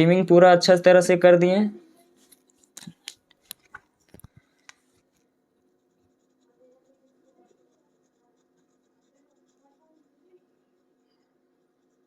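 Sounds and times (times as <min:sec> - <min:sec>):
pen writing: 0:03.5 - 0:12.0.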